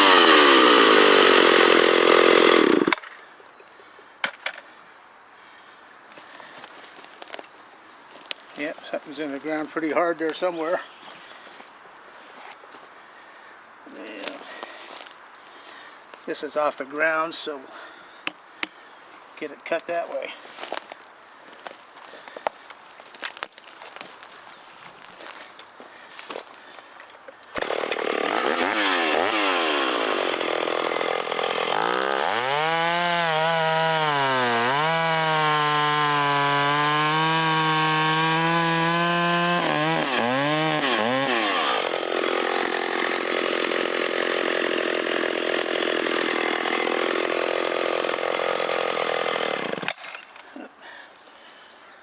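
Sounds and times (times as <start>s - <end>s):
chainsaw cutting through log: 0.0s - 3.1s, 27.6s - 50.2s.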